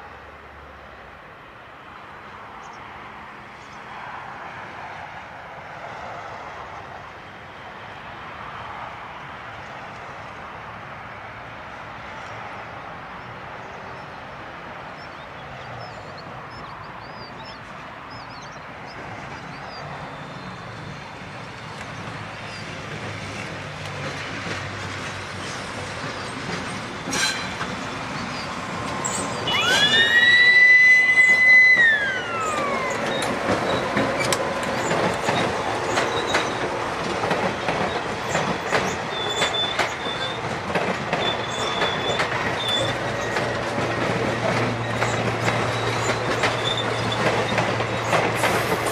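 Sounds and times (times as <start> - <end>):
train rumble: 13.6 - 48.9
wheel squeals: 27.1 - 36.6, 37.6 - 48.9
wheels clicking over rail joints: 31.1 - 48.9.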